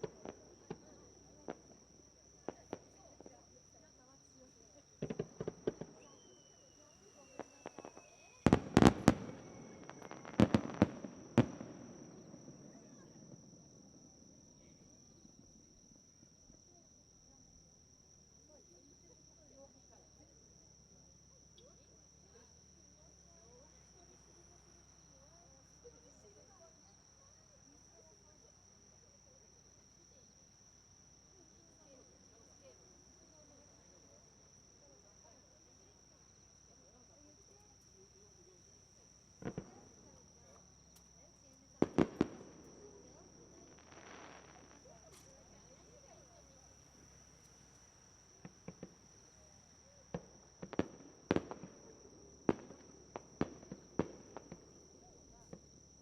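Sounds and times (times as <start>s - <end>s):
fireworks bangs: 0.0s - 3.5s, 4.9s - 13.9s, 39.4s - 55.7s
insect trill: 0.0s - 56.0s.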